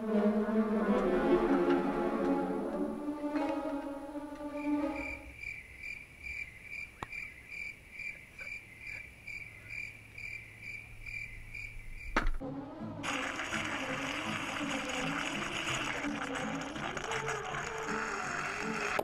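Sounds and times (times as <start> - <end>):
orchestral music: 0.0 - 5.4, 12.4 - 19.0
cricket chirping: 4.5 - 12.4.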